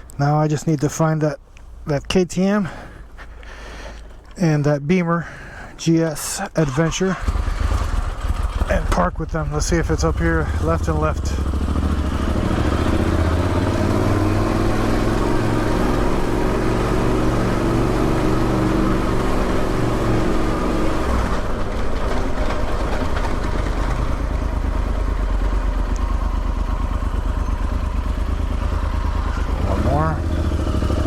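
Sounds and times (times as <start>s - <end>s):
motorcycle engine running: 7.1s - 31.0s.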